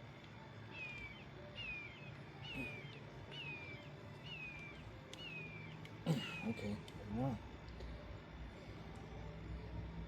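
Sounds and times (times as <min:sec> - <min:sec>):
faint low hum: 0:00.0 - 0:10.0
bird chirping: 0:00.6 - 0:06.8.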